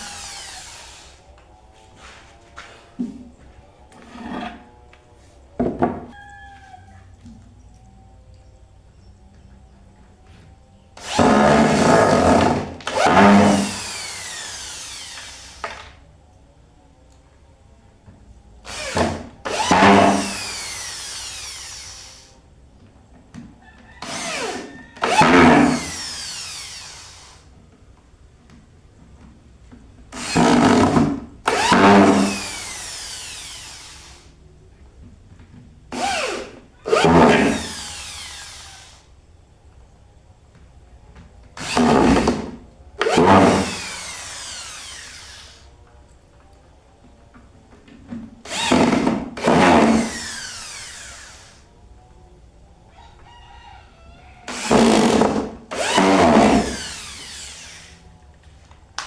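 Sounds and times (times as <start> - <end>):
power drill driving bolts into wood: 0.0 - 1.3, 11.0 - 16.0, 18.7 - 22.4, 24.0 - 27.5, 30.1 - 34.3, 35.9 - 39.1, 41.6 - 45.7, 48.4 - 51.6, 54.5 - 58.0.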